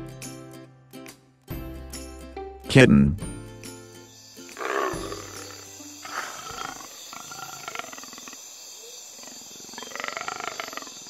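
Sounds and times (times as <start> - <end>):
leopard growling: 4.5 - 8.5, 9.1 - 11.0.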